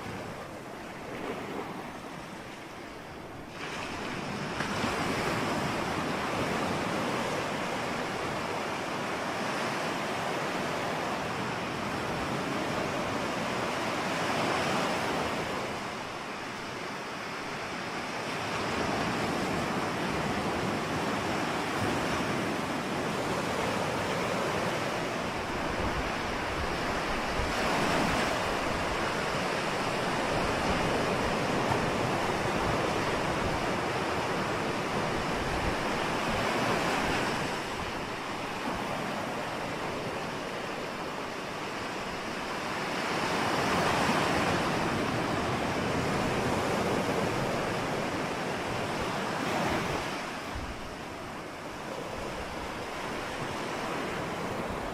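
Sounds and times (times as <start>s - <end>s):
ocean waves breaking: 0.0s - 54.9s
wind noise on microphone: 0.0s - 54.9s.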